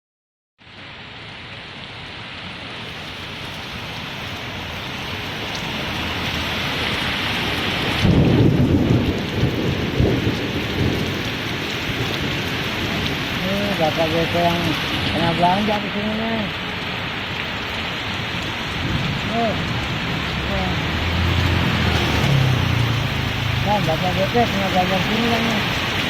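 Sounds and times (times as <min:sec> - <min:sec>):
heavy rain pouring: 0:00.6 - 0:26.0
loud low rumble: 0:18.8 - 0:24.3.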